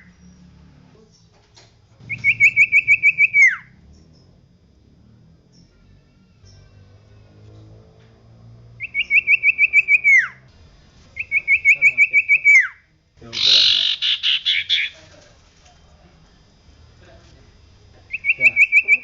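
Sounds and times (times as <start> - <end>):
bird trilling: 2.0 - 4.3, 8.8 - 10.5, 11.2 - 15.0, 18.1 - 19.0.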